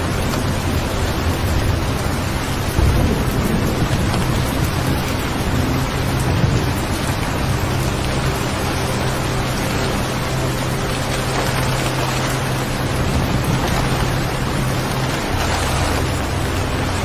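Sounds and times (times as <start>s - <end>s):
steady rain falling: 0.0s - 17.0s
low rolls of thunder: 1.4s - 8.5s.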